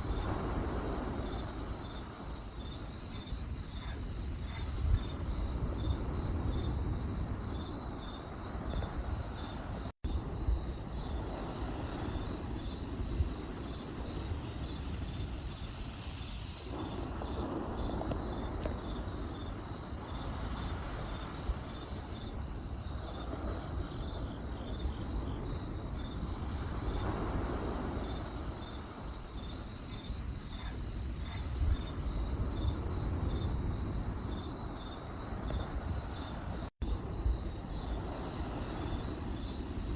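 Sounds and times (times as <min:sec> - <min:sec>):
campfire crackling: 0:00.0 - 0:39.9
crickets chirping: 0:00.0 - 0:39.9
fire popping: 0:11.2 - 0:37.2.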